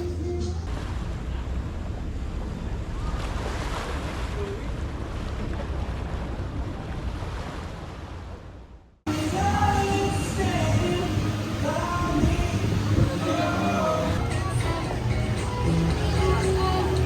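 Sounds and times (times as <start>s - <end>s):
sea waves washing: 9.1s - 17.0s
wind buffeting the microphone: 11.6s - 14.2s.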